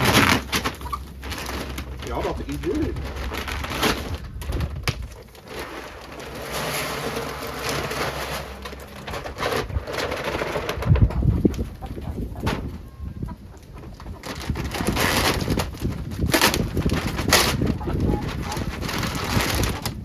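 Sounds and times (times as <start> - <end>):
feed pouring into a feeder: 5.4 - 10.9
chickens cooing softly: 10.4 - 15.2, 16.9 - 19.8.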